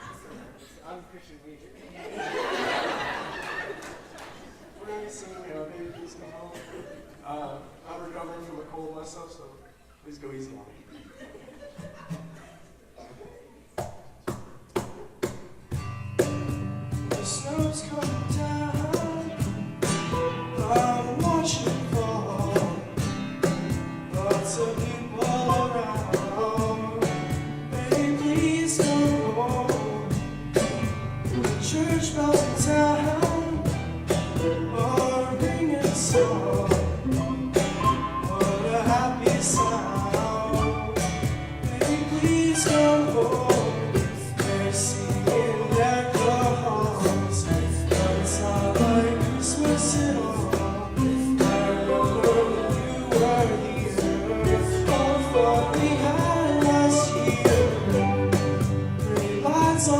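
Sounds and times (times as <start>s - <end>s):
pop song singers with band: 24.1s - 30.4s, 31.3s - 33.8s, 34.4s - 59.9s.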